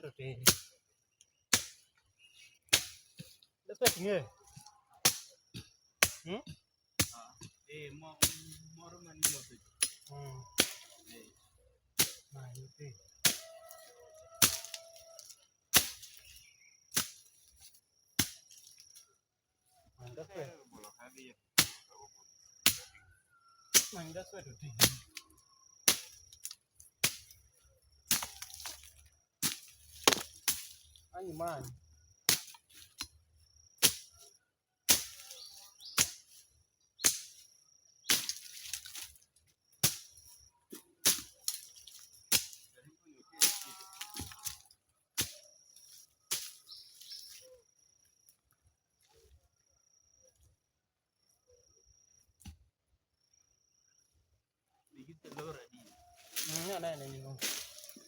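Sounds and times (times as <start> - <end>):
hand tool striking: 8.2 - 8.6, 14.4 - 16.3, 24.8 - 25.2, 28.1 - 30.8, 37.0 - 37.4.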